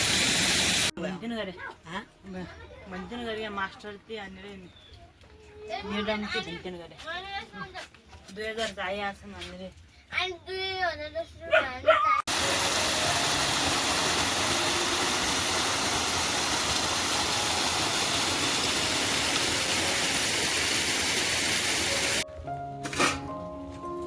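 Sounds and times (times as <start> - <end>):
loud rushing hiss: 0.0 - 0.9, 12.3 - 22.2
background music: 12.3 - 16.3, 21.7 - 24.0.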